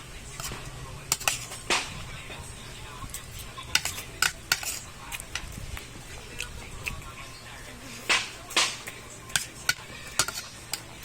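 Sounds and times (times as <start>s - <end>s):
cutlery clinking on a plate: 0.4s - 2.0s, 3.1s - 5.5s, 8.0s - 11.0s.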